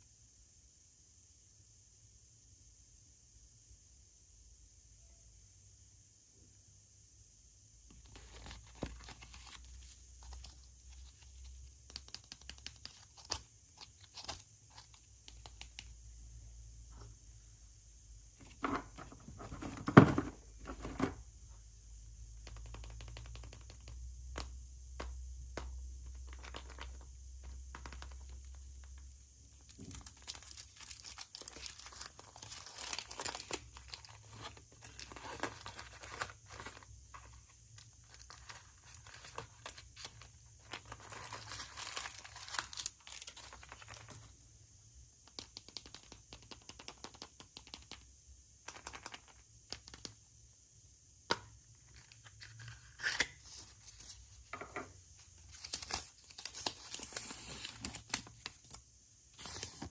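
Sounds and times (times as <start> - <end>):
packaging crinkling: 29.6 - 44.3.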